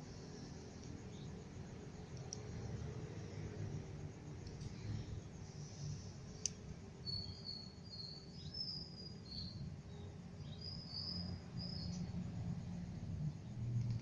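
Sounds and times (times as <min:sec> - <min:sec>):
bird chirping: 0:07.0 - 0:12.2.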